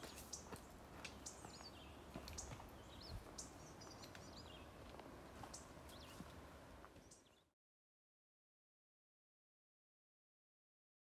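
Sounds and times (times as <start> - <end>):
birds chirping: 0.0 - 7.5.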